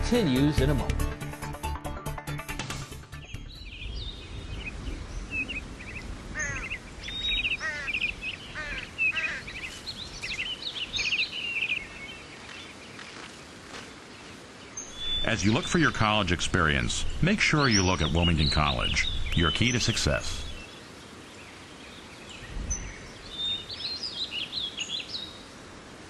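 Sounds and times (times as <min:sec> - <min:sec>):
outdoor background hiss: 0:02.8 - 0:26.0
birds chirping in trills: 0:03.1 - 0:25.6.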